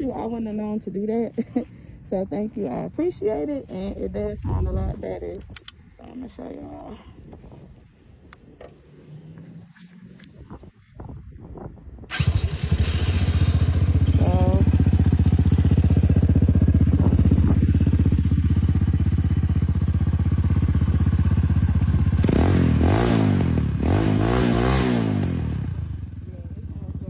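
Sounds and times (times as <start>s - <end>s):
motorcycle engine idling: 12.1s - 24.2s, 24.9s - 27.0s
motorcycle engine revving: 12.1s - 27.0s.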